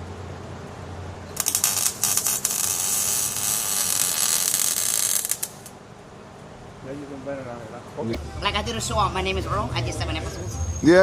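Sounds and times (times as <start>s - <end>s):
welder arc crackling: 1.4s - 5.8s.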